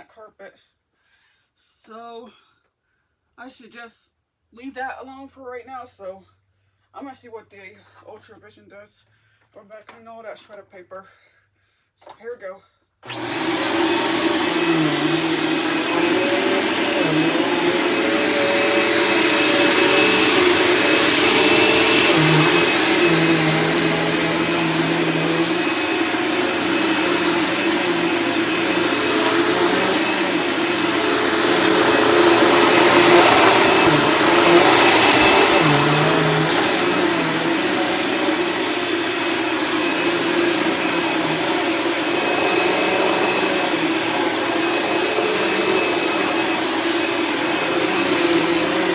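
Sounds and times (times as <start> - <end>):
vacuum cleaner running: 13.1 - 48.9.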